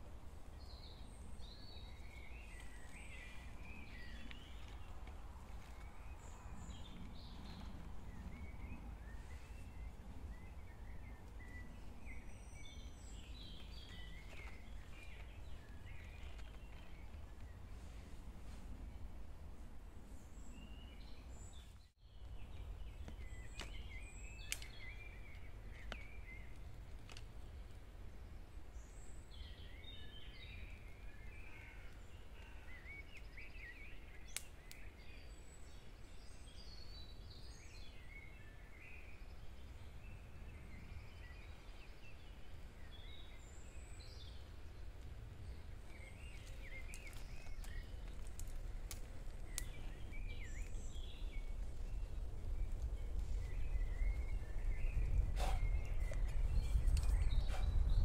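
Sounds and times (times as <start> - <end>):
small birds chirping: 0.4 - 19.3, 20.0 - 58.0.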